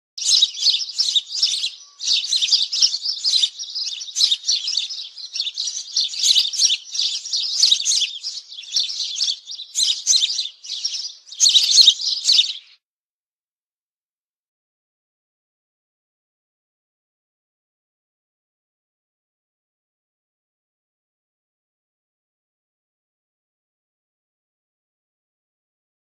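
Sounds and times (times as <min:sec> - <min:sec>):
small birds chirping: 0:00.2 - 0:12.8.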